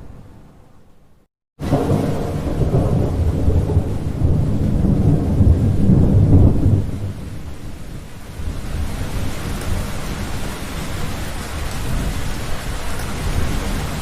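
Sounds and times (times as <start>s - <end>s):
thunder rolling: 1.6s - 7.7s
steady rain: 1.6s - 14.0s.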